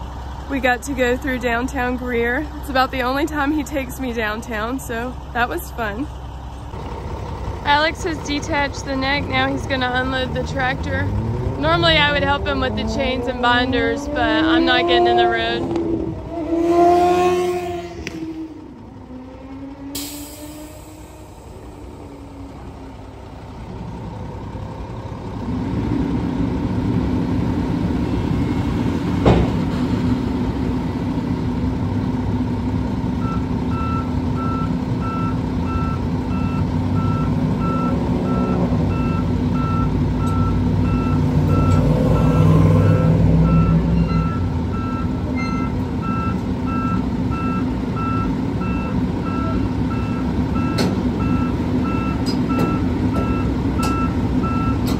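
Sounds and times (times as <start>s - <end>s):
excavator diesel engine: 0.0s - 54.9s
travel alarm beeping: 33.2s - 54.9s.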